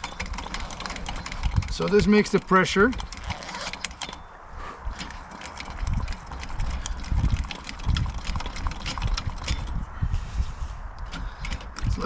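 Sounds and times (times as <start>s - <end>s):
hand pump plunger thudding: 2.9s - 4.2s.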